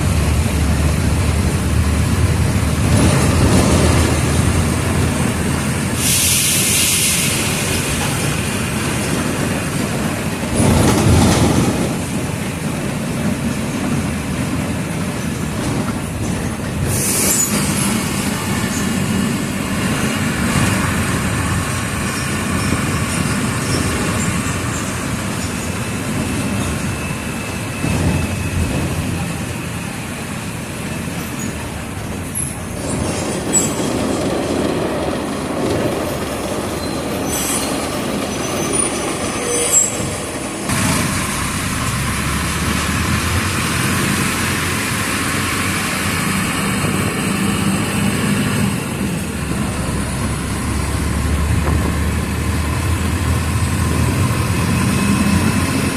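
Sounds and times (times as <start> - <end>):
bus diesel engine drone: 0.0 - 55.9
squeaks and rattles from bus body: 21.6 - 30.0, 31.1 - 40.4.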